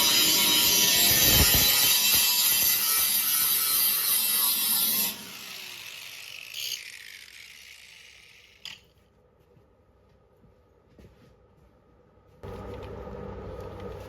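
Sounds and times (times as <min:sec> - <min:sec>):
grinder running: 0:00.0 - 0:08.8
grinder wheel spinning down: 0:00.0 - 0:08.8.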